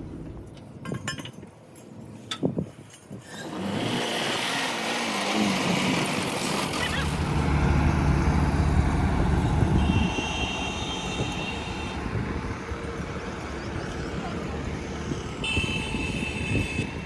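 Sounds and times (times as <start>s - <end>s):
vehicle passing with low rumble: 5.5s - 17.0s.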